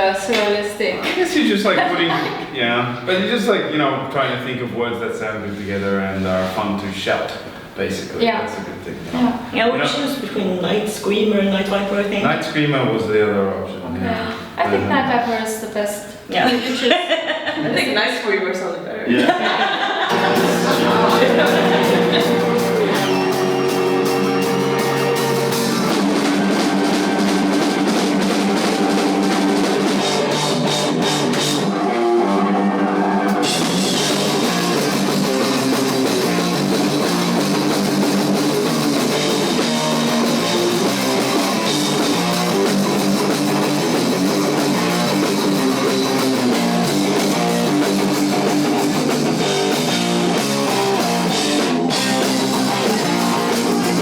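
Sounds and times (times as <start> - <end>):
drum kit: 20.1 - 54.0
electric guitars: 20.1 - 54.0
heavy metal band playing live: 20.1 - 54.0.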